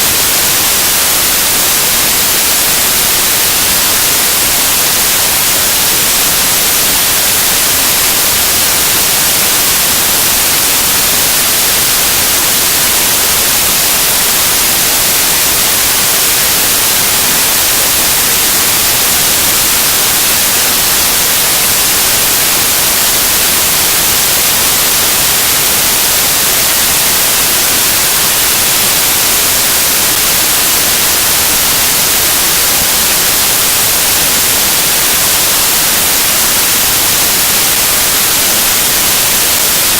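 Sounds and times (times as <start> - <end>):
static hiss: 0.0 - 39.9.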